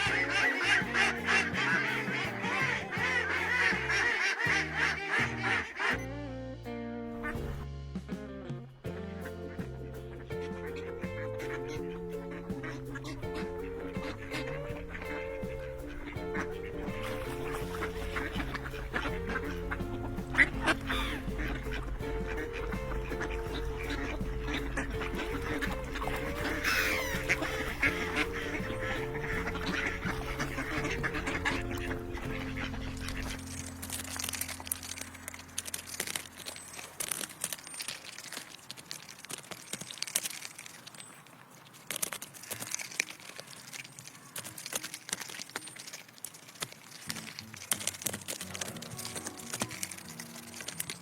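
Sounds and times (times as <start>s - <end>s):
soft background music: 0.0s - 37.8s, 47.2s - 51.0s
ducks quacking: 0.0s - 39.8s, 41.8s - 51.0s
small clicks and ticks: 34.0s - 51.0s.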